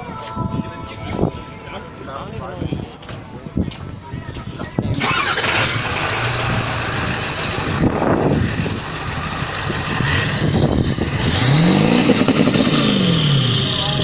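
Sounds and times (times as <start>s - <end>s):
motor vehicle engine running: 5.0s - 14.0s.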